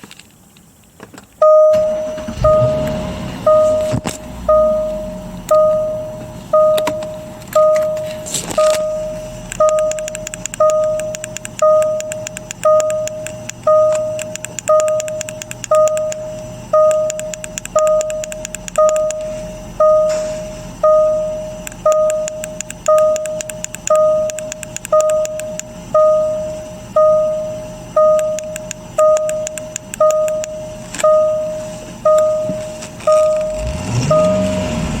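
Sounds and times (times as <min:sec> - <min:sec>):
dashboard warning chime: 0:01.4 - 0:34.9
fast light ticking: 0:08.6 - 0:20.1, 0:20.9 - 0:31.5.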